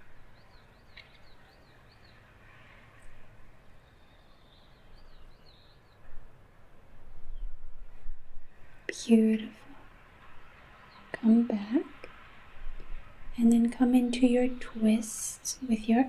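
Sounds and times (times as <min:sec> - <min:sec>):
songbird chirping: 0:00.0 - 0:06.4, 0:08.9 - 0:12.2.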